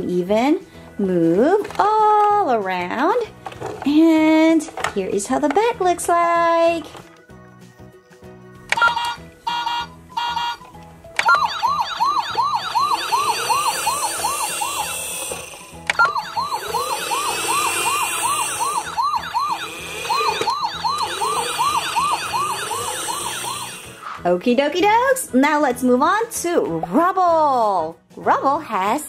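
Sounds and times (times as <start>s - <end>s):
toy siren short beeps: 8.8s - 10.6s, 11.2s - 24.0s
toy siren yelp: 8.8s - 10.6s, 11.2s - 24.1s.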